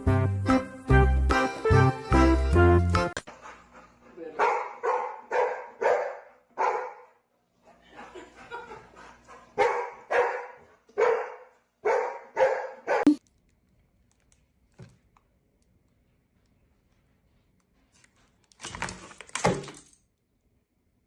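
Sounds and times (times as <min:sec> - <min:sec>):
dog barking: 0:04.4 - 0:07.2, 0:09.6 - 0:13.1.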